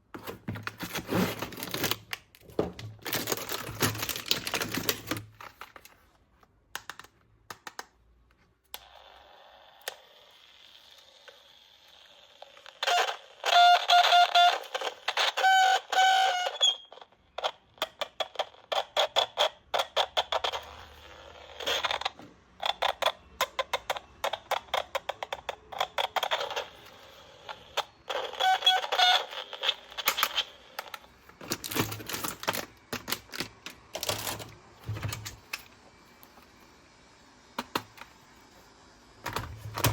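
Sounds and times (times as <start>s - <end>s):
electronic toy sound: 8.8s - 17.6s, 18.2s - 30.9s.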